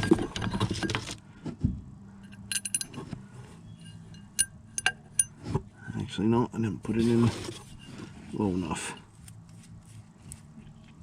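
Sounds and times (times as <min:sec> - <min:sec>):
metal parts and tools clinking: 0:00.0 - 0:01.2, 0:02.2 - 0:03.1, 0:03.8 - 0:05.4.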